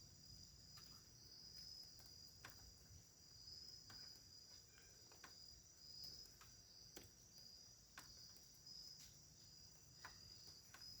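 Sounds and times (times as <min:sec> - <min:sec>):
crickets chirping: 0:00.0 - 0:11.0
faint clicks: 0:01.8 - 0:02.9, 0:03.8 - 0:07.2.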